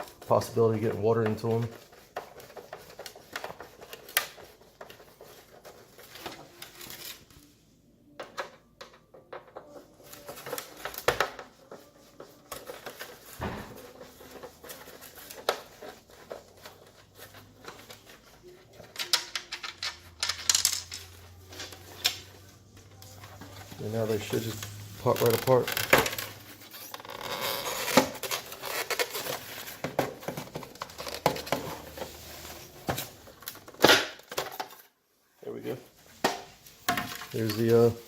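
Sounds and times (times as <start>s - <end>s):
clicks and clatter of plastic parts: 12.5s - 22.4s.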